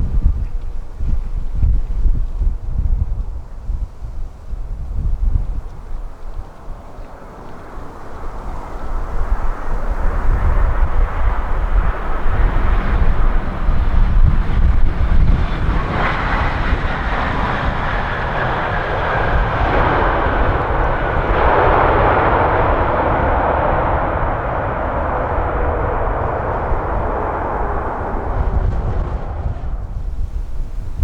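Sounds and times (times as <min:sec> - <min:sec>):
wind buffeting microphone: 0:00.0 - 0:31.0
airliner engines passing: 0:03.3 - 0:31.0
falling engine whine: 0:06.4 - 0:31.0.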